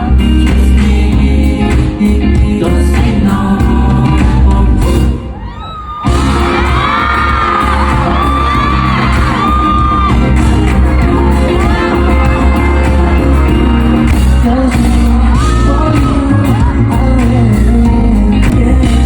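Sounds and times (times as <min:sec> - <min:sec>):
singing: 0:00.0 - 0:05.3, 0:06.1 - 0:19.0
pop music with heavy bass: 0:00.0 - 0:05.4, 0:06.0 - 0:19.0
audience whooping and screaming: 0:05.2 - 0:18.1.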